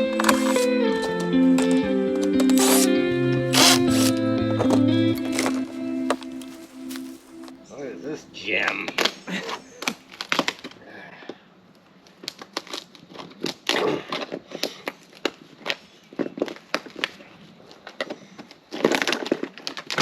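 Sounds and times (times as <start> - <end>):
styrofoam crackling and snapping: 0.0 - 7.6, 9.8 - 10.7, 12.1 - 14.3.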